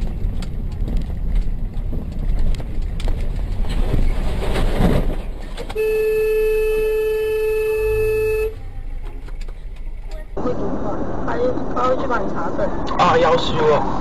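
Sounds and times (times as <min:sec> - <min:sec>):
vehicle engine and road noise: 0:00.0 - 0:14.0
vehicle horn blast: 0:05.8 - 0:08.6.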